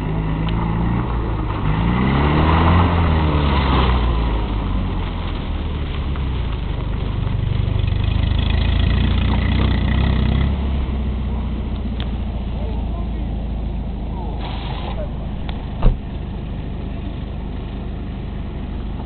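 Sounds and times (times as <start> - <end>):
small car engine revving hard: 0.0 - 4.6, 8.0 - 11.0.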